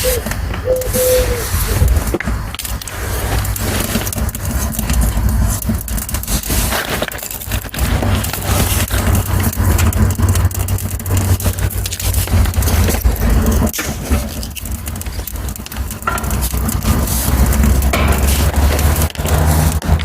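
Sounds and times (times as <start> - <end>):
twigs crackling in small fire: 0.0 - 20.0
low rumble: 7.4 - 20.0.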